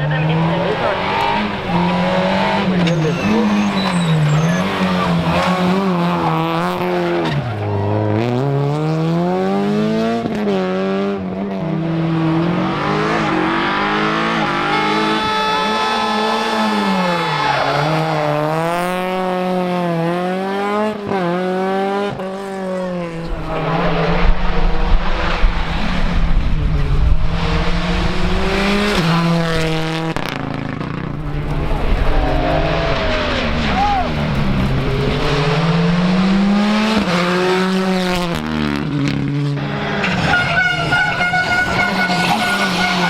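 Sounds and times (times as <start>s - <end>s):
rally car engine revving: 0.0s - 43.0s
tyre squeal: 1.7s - 6.4s, 40.0s - 43.0s
rough rumble: 23.0s - 43.0s.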